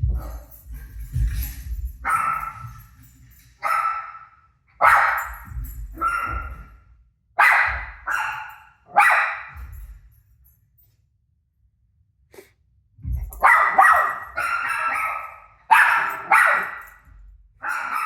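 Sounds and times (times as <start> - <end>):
dog barking: 2.0 - 3.0, 3.6 - 6.7, 7.4 - 9.9, 13.2 - 18.0.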